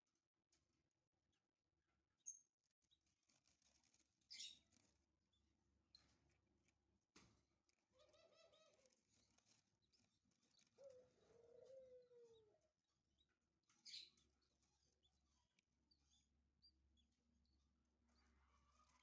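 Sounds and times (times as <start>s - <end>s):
faint high bird chirps: 4.3s - 4.6s, 13.2s - 17.6s
low coo-like bird call: 8.0s - 9.0s, 10.8s - 12.7s.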